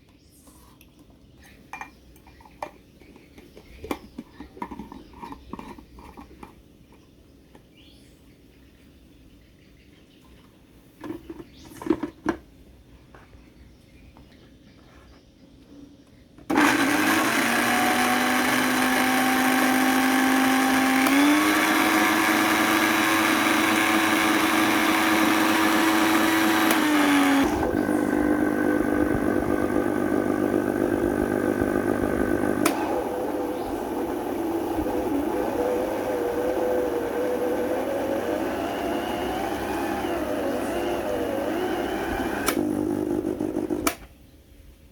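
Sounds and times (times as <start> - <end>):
electric blender motor running: 16.5 - 44.0.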